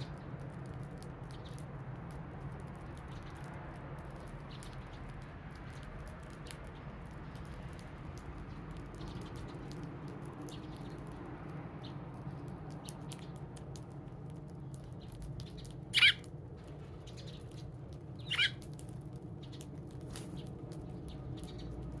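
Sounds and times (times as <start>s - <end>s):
sparrow chirps: 4.1s - 7.5s, 8.4s - 11.2s, 14.6s - 18.7s, 19.4s - 22.0s.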